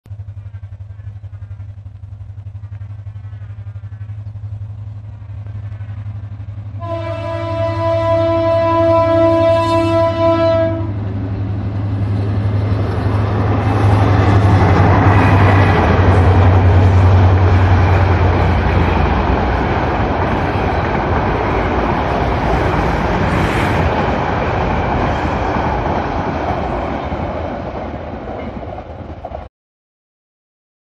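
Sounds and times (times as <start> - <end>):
locomotive drone: 0.0 - 29.5
train wheels rushing on rails: 0.1 - 29.5
train horn: 6.7 - 11.1.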